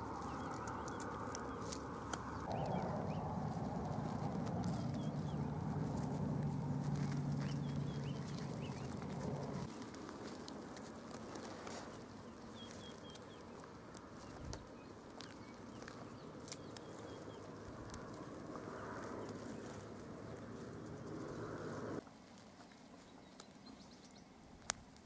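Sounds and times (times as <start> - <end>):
low hum: 0.0 - 10.6
small birds chirping: 0.0 - 24.8.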